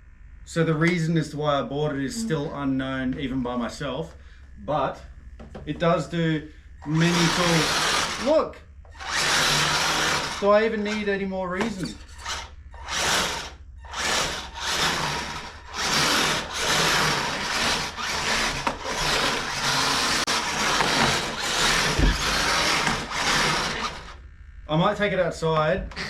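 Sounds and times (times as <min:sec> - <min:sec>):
toy snow plough electric motor: 0:06.8 - 0:24.2.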